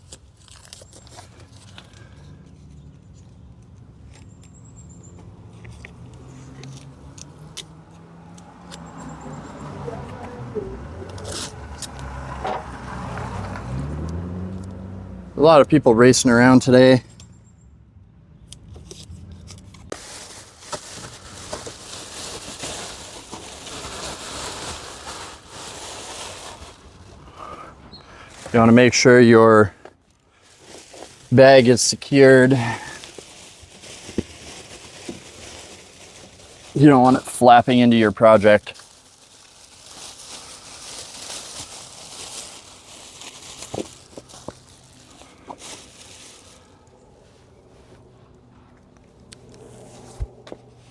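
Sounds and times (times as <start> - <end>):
plastic sheet rustling: 19.9 - 27.5, 28.2 - 29.1, 30.3 - 46.8.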